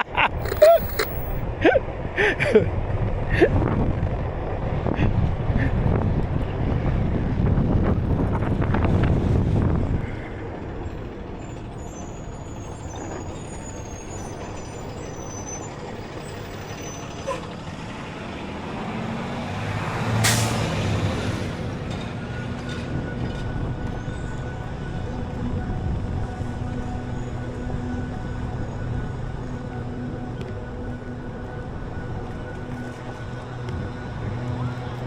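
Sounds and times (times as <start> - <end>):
heavy vehicle rumble: 0.0 - 35.0
street traffic: 0.0 - 35.0
air brake hiss: 20.2 - 20.7.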